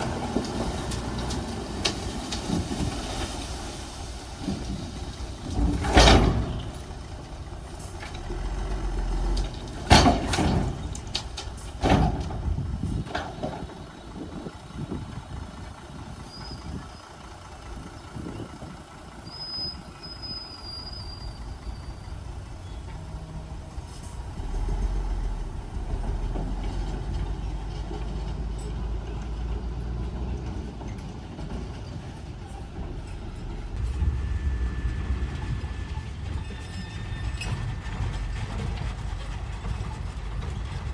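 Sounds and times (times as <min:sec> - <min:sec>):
bulldozer engine rumbling: 0:00.0 - 0:40.9
faint high squeal: 0:19.2 - 0:25.2, 0:33.8 - 0:38.4.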